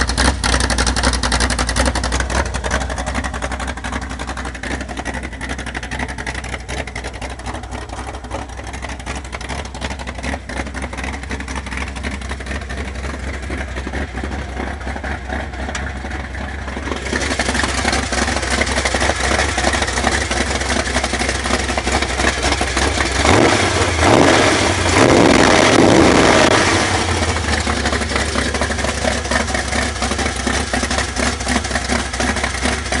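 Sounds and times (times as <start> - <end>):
engine idling and revving: 0.0 - 33.0.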